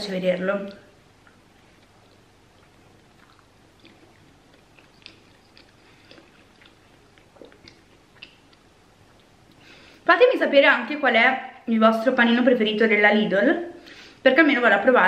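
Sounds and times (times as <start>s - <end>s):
person chewing with wet mouth clicks: 0.7s - 9.6s.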